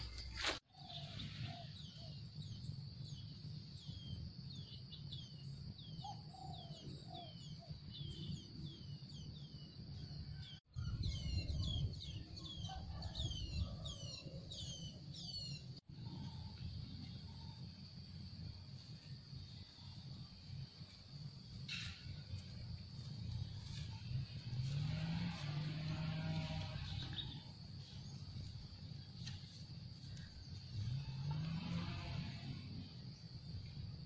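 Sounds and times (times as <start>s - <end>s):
bird chirping: 0.0s - 17.8s
wind on microphone: 10.7s - 14.0s.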